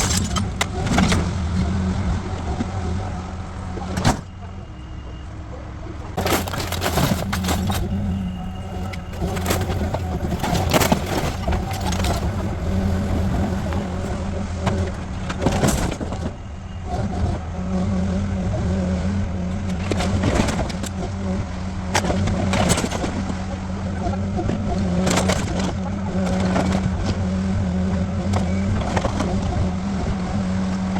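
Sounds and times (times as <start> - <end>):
heavy machine engine running: 0.0 - 30.9
structure cracking and crashing: 6.1 - 16.5.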